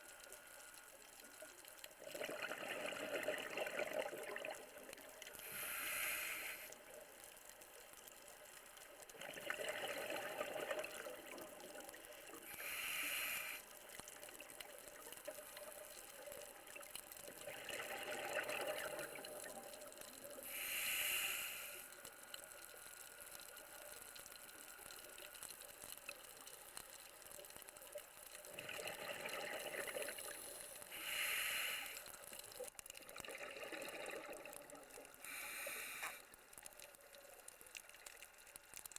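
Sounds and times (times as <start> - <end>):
exhaled bubbles rushing: 2.0 - 4.7, 9.2 - 11.5, 17.4 - 19.4, 28.5 - 30.3, 33.0 - 35.0
diver breathing through regulator: 5.4 - 6.8, 12.5 - 13.7, 20.4 - 22.0, 29.9 - 32.2, 35.2 - 36.3.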